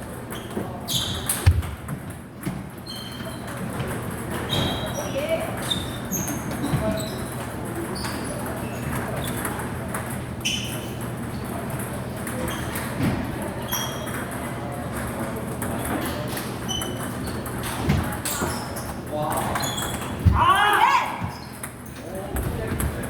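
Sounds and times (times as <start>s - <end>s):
background chatter: 3.0s - 23.0s
table tennis balls pinging: 13.6s - 20.6s.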